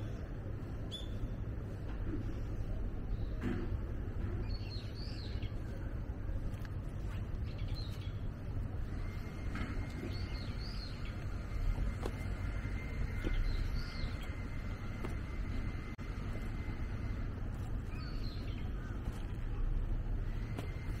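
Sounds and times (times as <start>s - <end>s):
small birds chirping: 0.0s - 1.5s, 4.3s - 21.0s.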